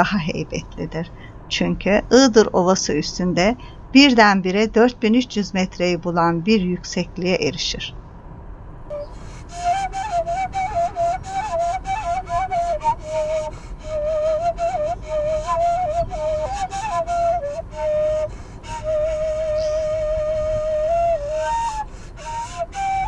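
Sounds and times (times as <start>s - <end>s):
low steady accompaniment: 0.0s - 23.0s
solo flute melody: 8.9s - 23.0s.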